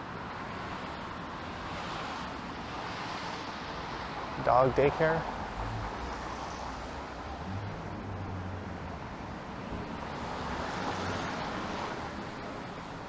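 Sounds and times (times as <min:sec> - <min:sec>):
tyres hissing on wet pavement: 0:02.8 - 0:13.0
low engine rumble: 0:05.3 - 0:12.8.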